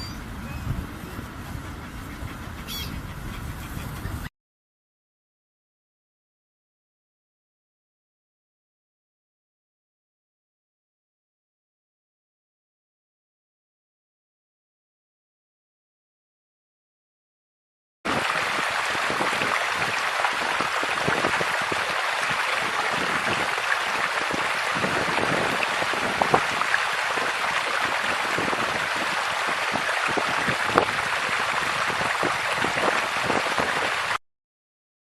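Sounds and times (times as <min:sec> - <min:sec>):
steady rain: 0:18.1 - 0:34.2.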